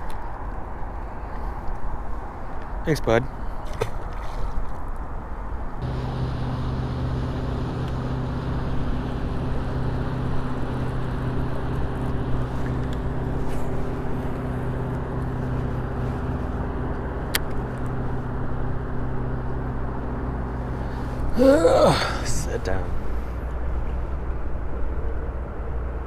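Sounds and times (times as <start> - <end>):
motor humming: 5.8 - 19.8.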